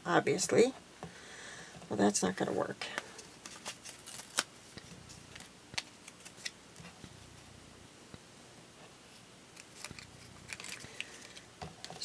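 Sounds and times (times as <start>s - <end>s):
faint paper rustling: 2.9s - 7.5s, 8.8s - 12.0s.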